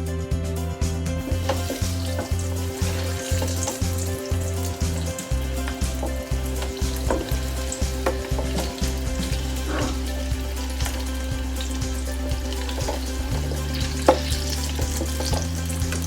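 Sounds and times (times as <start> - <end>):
background music with low beat: 0.0 - 16.0
chicken sizzling in hot oil: 1.2 - 16.0.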